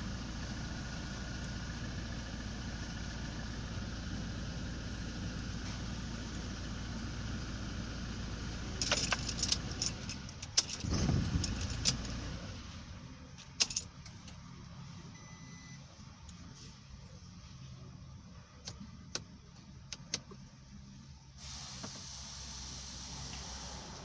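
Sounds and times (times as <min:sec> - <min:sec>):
engine shutting off: 0:00.0 - 0:13.3, 0:21.3 - 0:24.0
diesel engine idling: 0:00.0 - 0:24.0
keys jangling and clicking: 0:08.8 - 0:12.1, 0:13.6 - 0:13.9.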